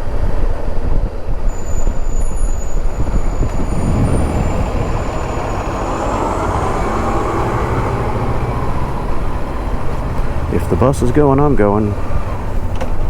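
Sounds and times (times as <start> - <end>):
heavy traffic rumble: 0.8 - 13.0
bus or truck engine running: 1.4 - 13.0.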